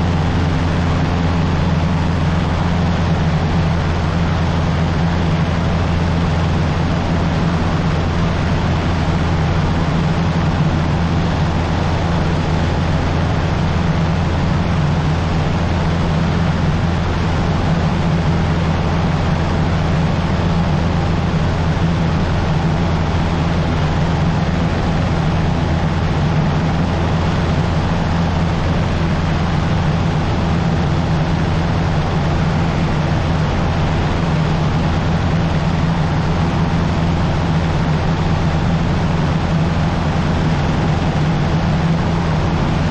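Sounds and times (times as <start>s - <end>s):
light aircraft engine droning: 0.0s - 42.9s.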